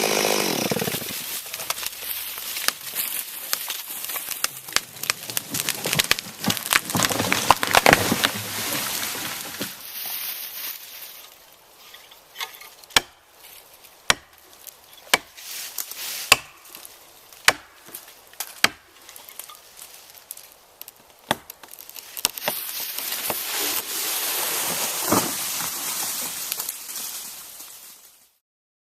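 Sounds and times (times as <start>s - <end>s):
tree falling rushing and crackling: 0.0s - 10.4s, 18.6s - 28.0s.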